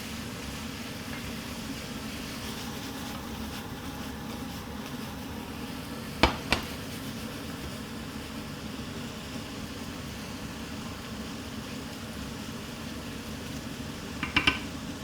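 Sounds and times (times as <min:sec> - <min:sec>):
extractor hood fan humming: 0:00.0 - 0:15.0.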